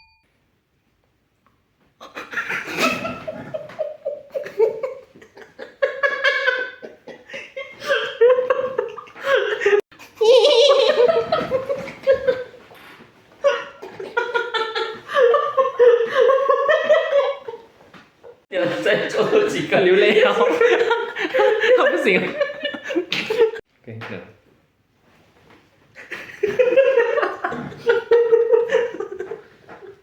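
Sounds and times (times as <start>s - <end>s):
hearty laughter: 2.0s - 12.6s, 13.4s - 17.7s, 18.6s - 23.6s, 26.0s - 30.0s.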